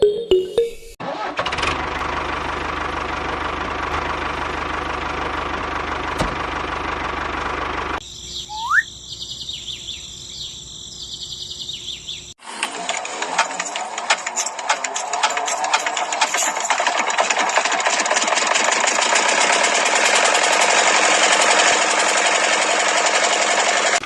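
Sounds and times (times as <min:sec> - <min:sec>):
birds chirping and whistling: 0:08.0 - 0:12.4
small motor machine churning: 0:12.4 - 0:24.0.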